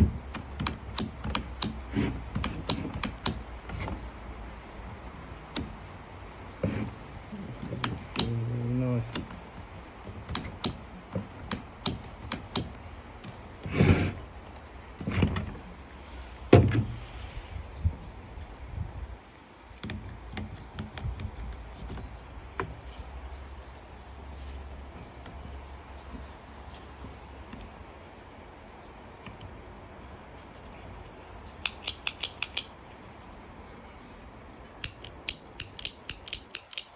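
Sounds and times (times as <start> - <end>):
heavy knocks on bench: 16.5 - 17.0
small sharp clicks of tools: 31.6 - 32.8, 34.8 - 36.9.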